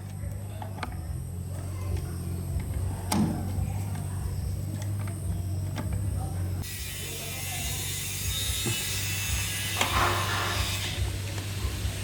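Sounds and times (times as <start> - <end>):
mechanical hum: 0.0 - 12.0
hiss: 8.7 - 12.0.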